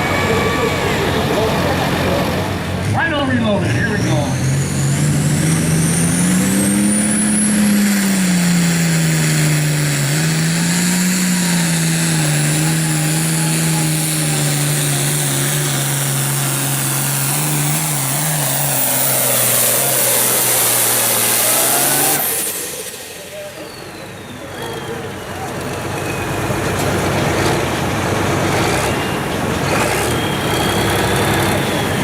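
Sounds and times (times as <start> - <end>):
high whine: 0.0 - 10.7
diesel engine at full power: 0.0 - 32.0.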